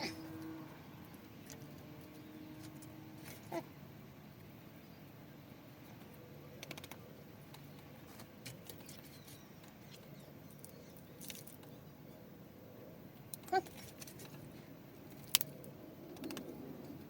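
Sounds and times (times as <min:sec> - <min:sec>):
potting soil scratching and clicking: 0:06.6 - 0:11.8, 0:13.3 - 0:17.0.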